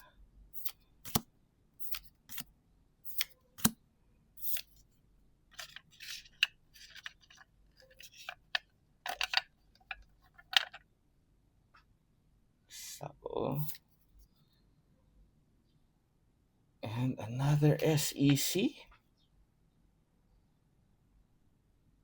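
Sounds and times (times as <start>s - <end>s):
cards clicking and sliding: 0.6s - 1.2s, 1.8s - 2.5s, 3.1s - 3.8s, 4.4s - 4.8s, 5.6s - 10.8s.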